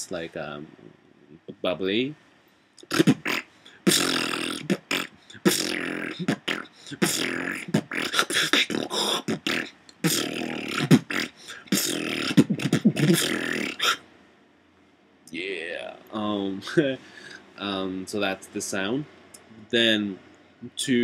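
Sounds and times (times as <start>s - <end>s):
beatboxer buzzy held notes: 2.8s - 14.0s
beatboxer percussive clicks: 2.8s - 14.0s.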